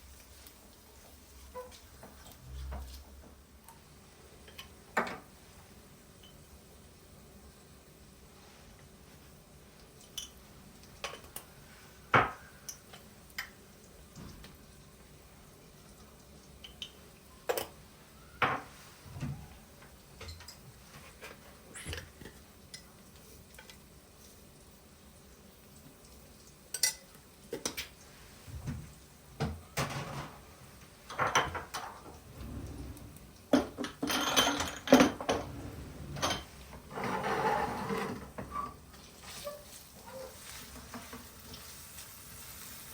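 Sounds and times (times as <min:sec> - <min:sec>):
dishes and cutlery clinking: 0:16.6 - 0:17.8, 0:20.2 - 0:22.9, 0:26.7 - 0:27.9, 0:33.6 - 0:38.8.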